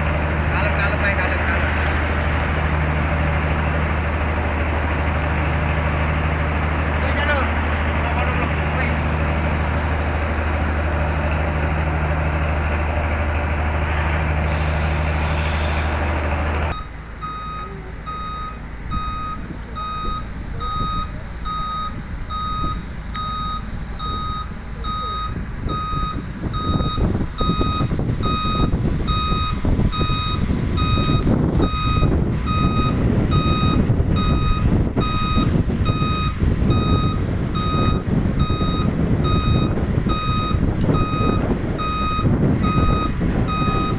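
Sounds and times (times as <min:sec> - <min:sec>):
truck engine drone: 0:00.0 - 0:43.9
reversing alarm beeping: 0:16.7 - 0:43.9.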